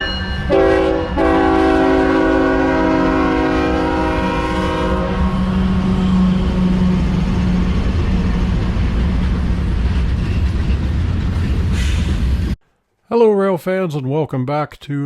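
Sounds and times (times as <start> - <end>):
passing train rumble: 0.0 - 12.6
locomotive air horn: 0.5 - 7.1.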